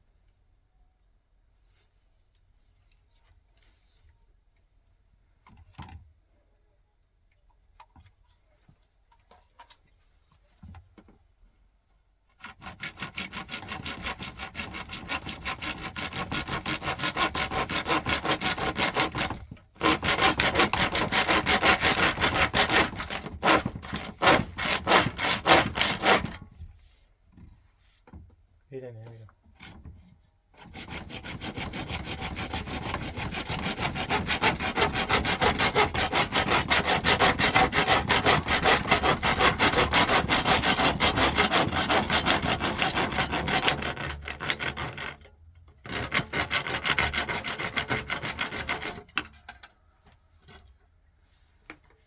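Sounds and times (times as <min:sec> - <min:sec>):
hand saw cutting: 0:12.4 - 0:26.5, 0:30.6 - 0:49.4.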